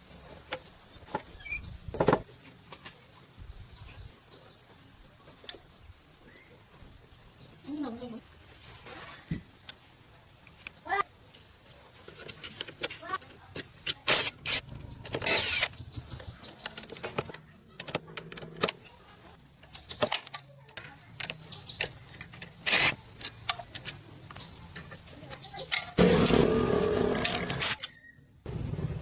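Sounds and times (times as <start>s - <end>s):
rasping bursts: 26.0s - 27.8s.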